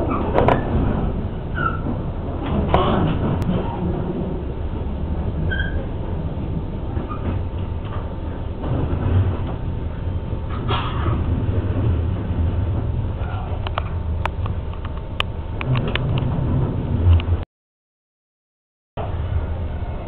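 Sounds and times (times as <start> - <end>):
train rumbling inside carriage: 0.0 - 17.4, 19.0 - 20.0
short squeak: 5.5 - 5.9.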